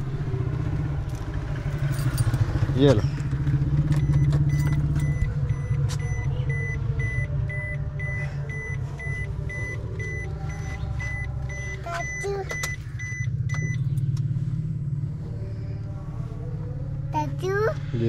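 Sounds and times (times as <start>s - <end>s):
car engine idling: 0.0s - 18.0s
dashboard warning chime beeping: 4.0s - 13.9s.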